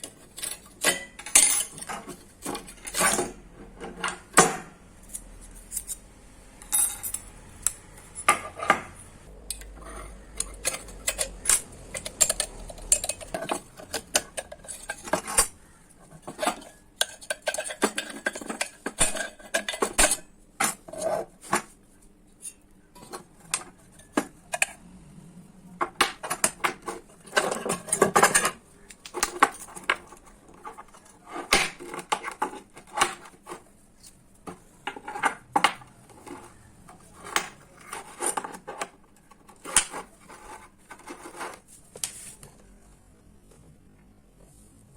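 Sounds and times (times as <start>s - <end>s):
metallic clinks and taps: 6.6s - 8.8s.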